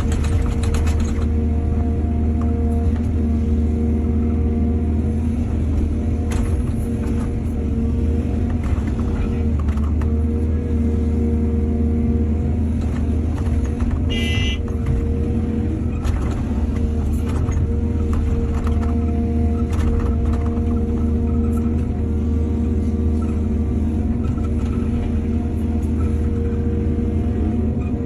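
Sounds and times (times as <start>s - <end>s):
clanks and knocks from digging: 0.0s - 1.4s
excavator diesel engine running: 0.0s - 28.0s.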